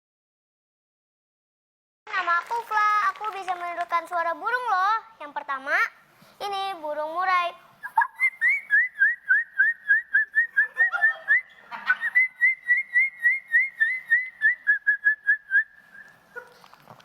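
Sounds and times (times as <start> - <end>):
child whistling birdsong: 8.1 - 10.7, 12.1 - 16.2.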